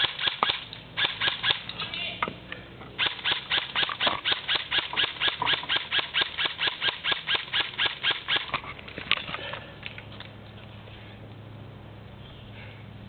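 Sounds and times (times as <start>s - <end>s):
airsoft gun shots: 0.0s - 1.7s, 3.0s - 8.5s.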